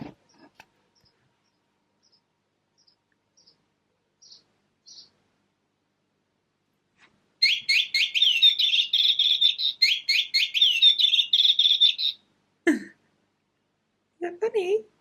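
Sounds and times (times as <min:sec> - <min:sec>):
recorded bird twittering: 0:00.2 - 0:03.6, 0:04.2 - 0:05.2, 0:07.4 - 0:12.3.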